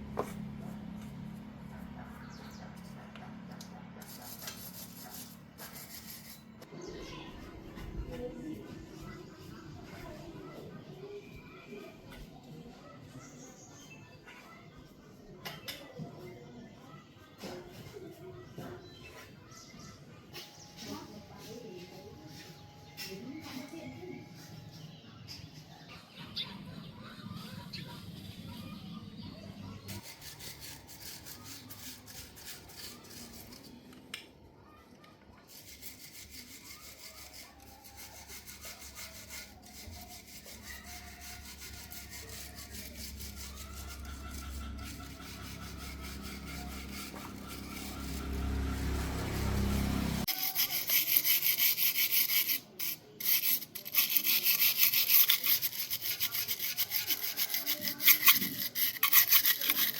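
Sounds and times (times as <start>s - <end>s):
hand abrasive scraping strokes: 4.0s - 7.2s, 29.8s - 33.8s, 35.5s - 59.9s.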